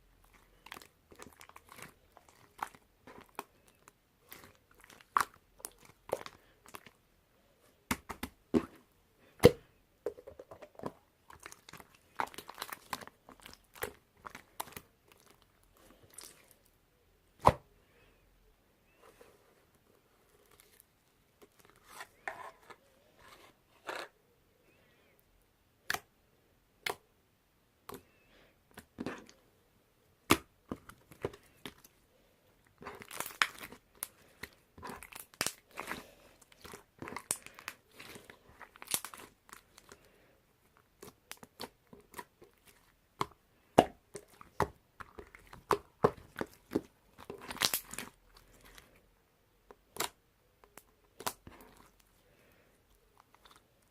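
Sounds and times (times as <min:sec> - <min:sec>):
slime squished by hand: 0:41.0 - 0:48.8.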